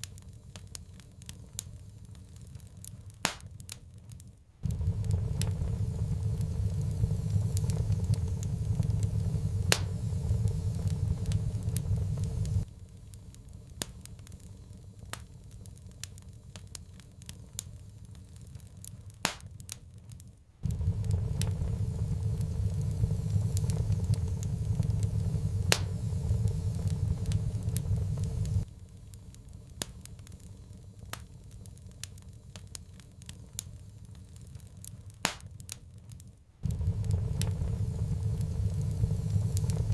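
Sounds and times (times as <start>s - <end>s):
wood fire crackling and popping: 0.0s - 39.9s
deep rumble: 4.6s - 12.8s, 20.6s - 28.7s, 36.6s - 39.9s.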